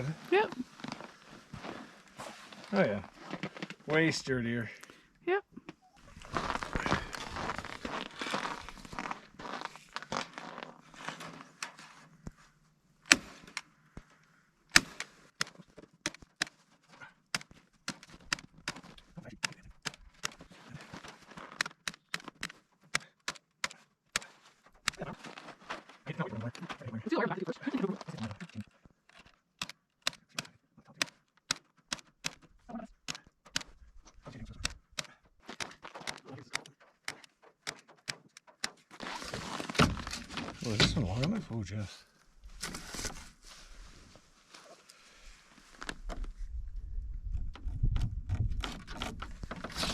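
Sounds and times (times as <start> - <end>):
sharp irregular clicks and taps: 14.7 - 16.6, 17.3 - 20.5, 21.5 - 25.0, 28.4 - 38.9.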